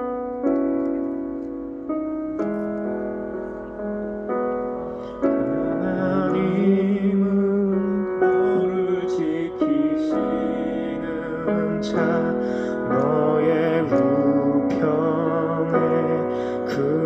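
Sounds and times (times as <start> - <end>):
electric keyboard sustained chords: 0.0 - 17.0.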